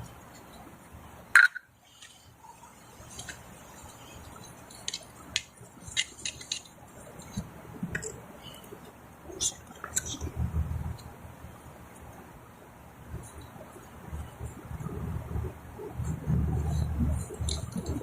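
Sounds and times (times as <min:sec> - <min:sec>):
pipe fittings handling: 0:03.1 - 0:08.2.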